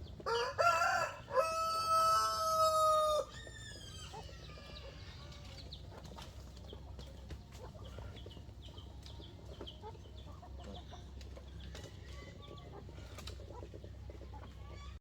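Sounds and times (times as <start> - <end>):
rooster crowing: 0.2 - 3.8.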